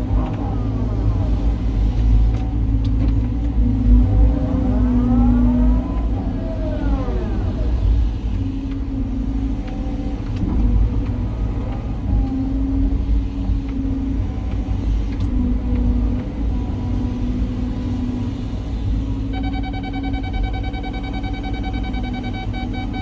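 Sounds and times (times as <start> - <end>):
excavator diesel engine under load: 0.0 - 23.0
rapid pulsing beep: 19.3 - 23.0.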